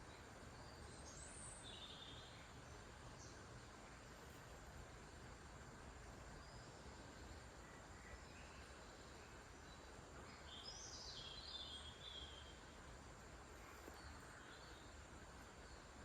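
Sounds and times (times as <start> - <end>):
soft steady hiss: 0.0 - 16.0
bird chirping: 6.4 - 12.7.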